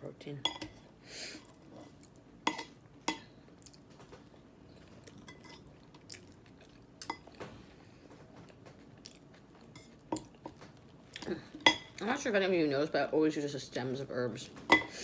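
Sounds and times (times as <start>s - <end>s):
chewing salad: 1.4s - 12.1s
cutlery scraping a dish: 1.7s - 3.2s, 5.2s - 5.7s.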